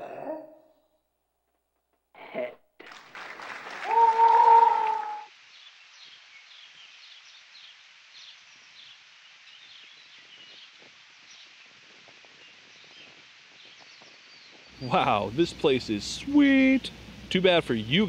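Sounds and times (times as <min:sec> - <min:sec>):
small birds chirping: 0:05.3 - 0:17.0
steady soft hiss: 0:05.3 - 0:18.0.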